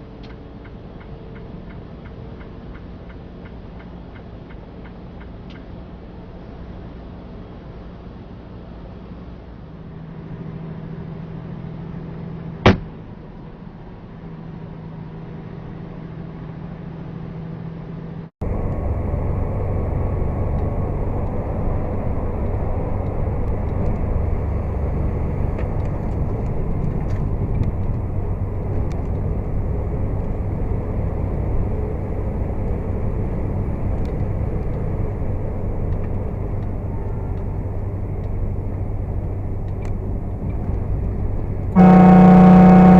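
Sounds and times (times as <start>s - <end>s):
vehicle engine and road drone: 0.0s - 42.9s
low hum: 18.4s - 42.9s.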